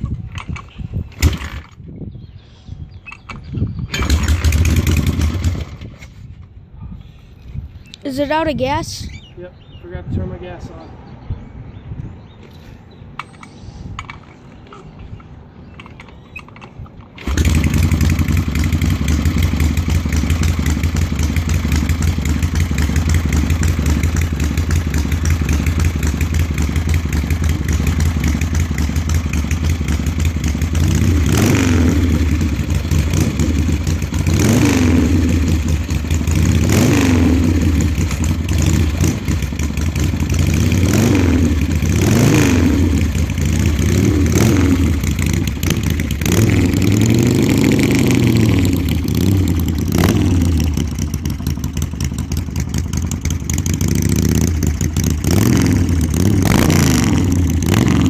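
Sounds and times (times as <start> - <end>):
motorcycle engine starting and running: 0.0 - 2.2, 2.9 - 6.6, 13.2 - 58.0
motorcycle engine revving: 3.6 - 6.2, 17.1 - 58.0.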